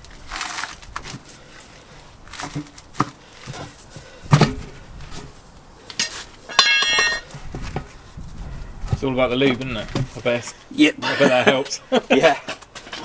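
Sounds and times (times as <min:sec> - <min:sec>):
tyre bars knocking and clanking: 0:02.4 - 0:05.4, 0:06.0 - 0:08.0.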